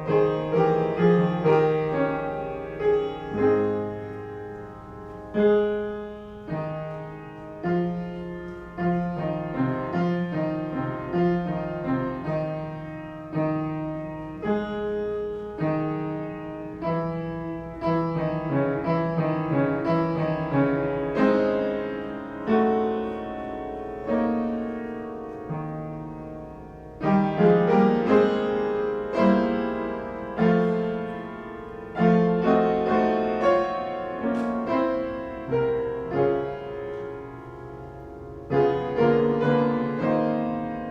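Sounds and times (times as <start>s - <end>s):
slow solo piano chords: 0.0s - 40.9s.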